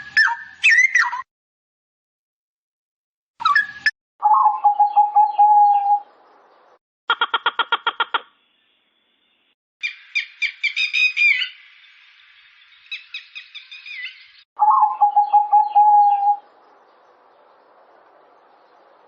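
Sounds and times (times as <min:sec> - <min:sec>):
quail chirping and calling: 0:03.4 - 0:06.0, 0:12.9 - 0:16.4.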